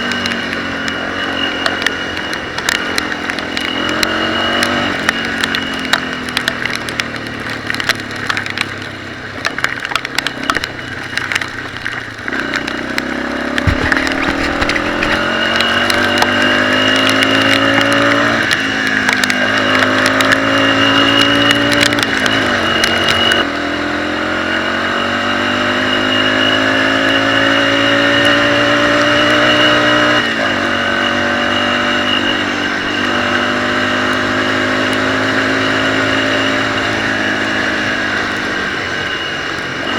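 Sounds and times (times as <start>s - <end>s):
off-road motorcycle engine revving: 0.0s - 39.9s
rattling knocks and clatter: 13.6s - 18.0s.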